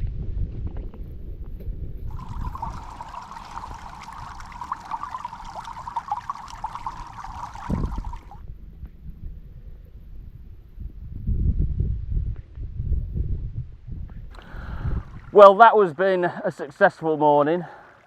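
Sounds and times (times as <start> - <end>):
rain pattering: 2.1 - 8.4.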